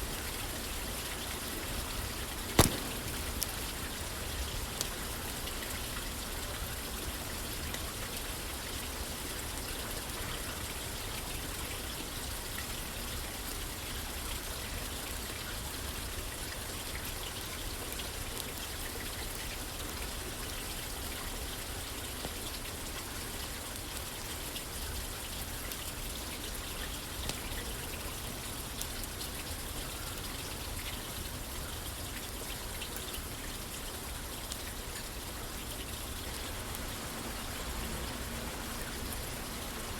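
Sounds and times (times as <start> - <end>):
rain pattering on a roof: 0.0 - 39.9
faint sharp ticks: 2.6 - 3.8.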